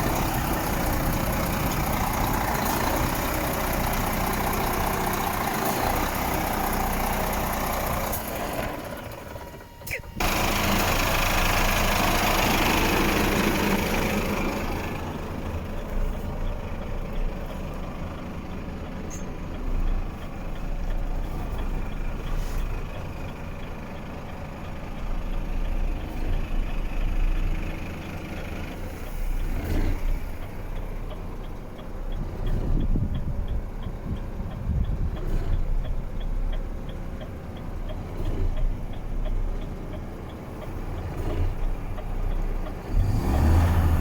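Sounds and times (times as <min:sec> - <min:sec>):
truck diesel engine droning: 0:00.0 - 0:44.0.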